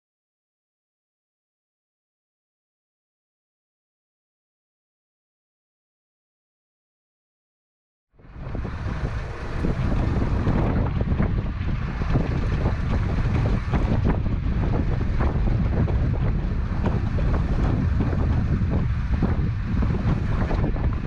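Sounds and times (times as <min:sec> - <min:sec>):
sea wash: 0:08.2 - 0:21.0
wind buffeting microphone: 0:08.2 - 0:21.0.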